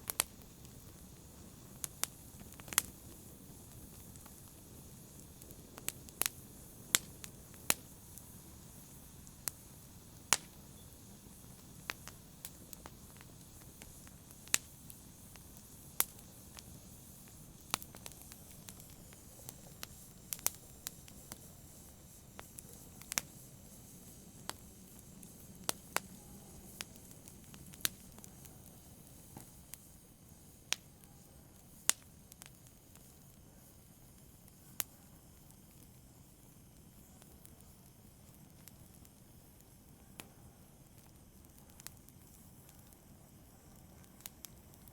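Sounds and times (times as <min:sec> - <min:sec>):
flames rushing: 0:00.0 - 0:30.6
burning wood popping: 0:00.0 - 0:44.9.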